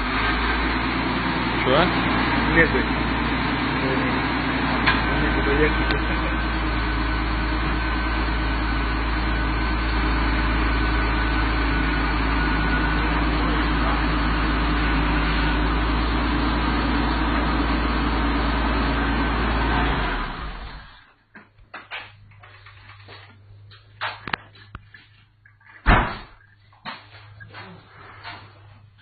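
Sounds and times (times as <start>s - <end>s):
car engine idling: 0.0s - 21.1s.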